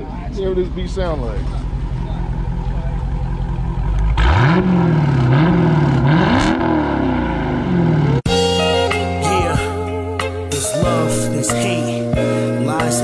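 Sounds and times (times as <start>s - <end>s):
car engine idling: 0.0s - 8.3s
engine revving: 0.8s - 8.5s.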